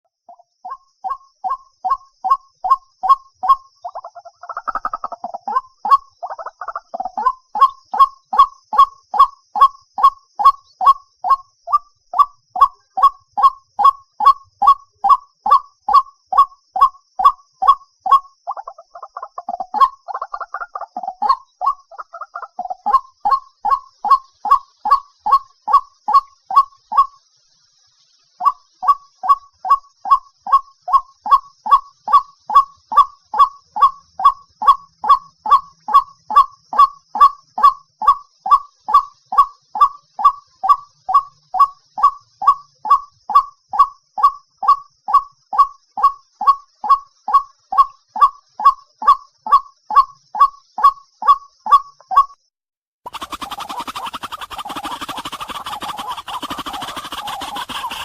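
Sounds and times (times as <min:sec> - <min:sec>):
waterhen honking calls: 0:04.4 - 0:08.5, 0:53.1 - 0:58.0.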